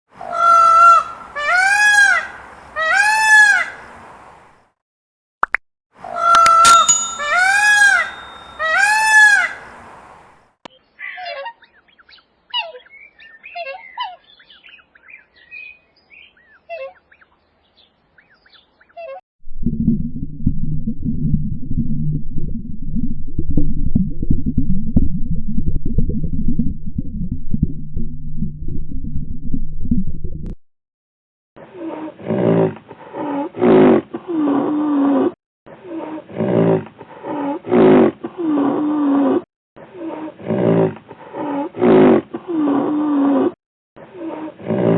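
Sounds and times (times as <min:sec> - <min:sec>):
animal calling: 0:00.2 - 0:03.9, 0:06.1 - 0:10.0
lower bird calls sliding downward: 0:06.1 - 0:09.8
small birds chirping: 0:06.8 - 0:19.0.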